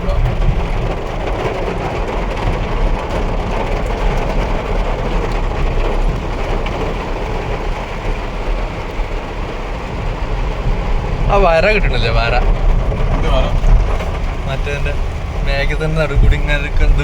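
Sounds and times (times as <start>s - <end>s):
car engine and road rumble: 0.0s - 17.0s
rain on a car: 0.0s - 17.0s.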